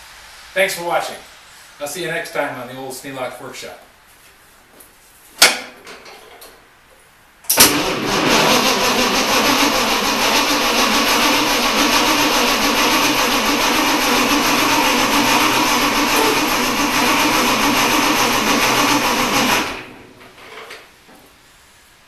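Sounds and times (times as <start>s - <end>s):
starter motor cranking engine: 7.5s - 20.4s.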